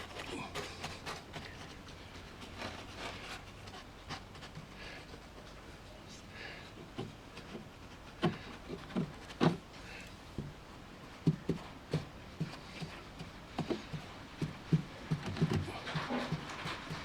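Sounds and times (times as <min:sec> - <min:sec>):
soft taps of paper on foam: 0:06.6 - 0:17.0.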